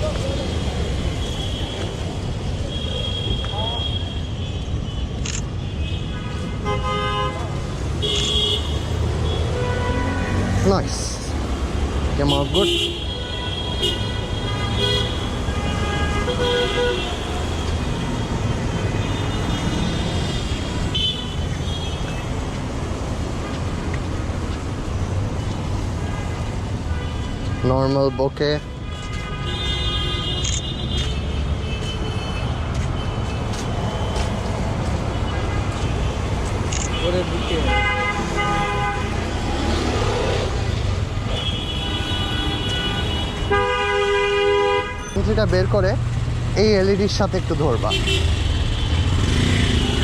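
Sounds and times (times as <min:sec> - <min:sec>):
busy road traffic: 0:00.0 - 0:50.0
car horns honking: 0:02.7 - 0:10.6, 0:12.2 - 0:22.3, 0:26.0 - 0:34.4, 0:35.0 - 0:40.1, 0:41.2 - 0:45.4, 0:47.6 - 0:50.0.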